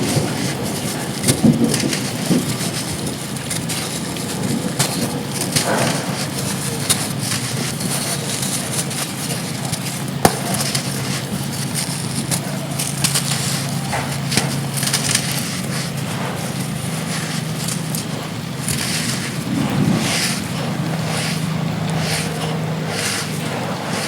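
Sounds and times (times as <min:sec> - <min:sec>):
pressed sand crunching: 0:00.0 - 0:24.0
low hum: 0:19.3 - 0:23.4.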